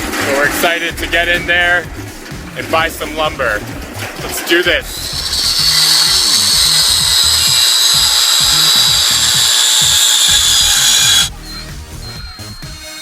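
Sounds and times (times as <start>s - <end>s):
background music with steady beat: 0.0s - 13.0s
power tool whining on wood: 4.8s - 11.3s.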